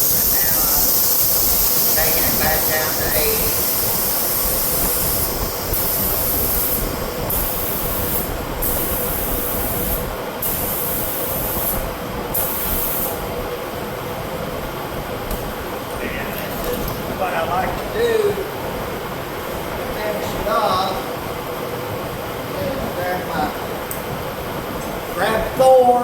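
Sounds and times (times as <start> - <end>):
compressed air hissing: 0.0 - 13.4
shop fan running: 0.0 - 26.0.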